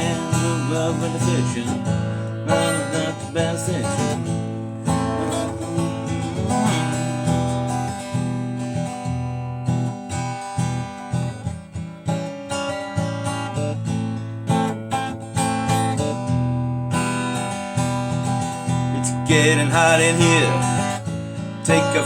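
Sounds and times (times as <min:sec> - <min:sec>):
strummed acoustic guitar music: 0:00.0 - 0:22.0.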